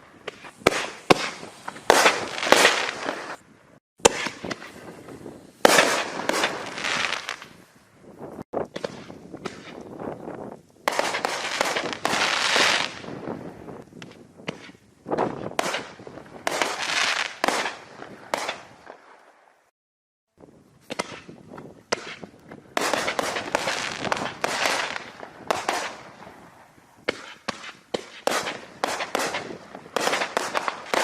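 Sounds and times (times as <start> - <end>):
firework shells bursting: 20.8 - 31.0.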